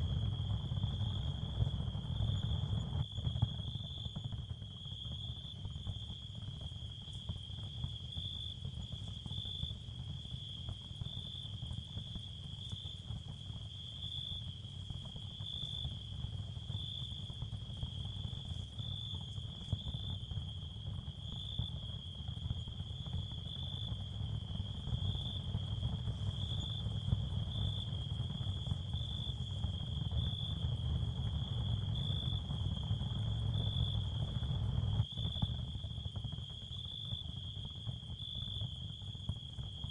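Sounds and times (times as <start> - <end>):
continuous low rumble: 0.0 - 39.9.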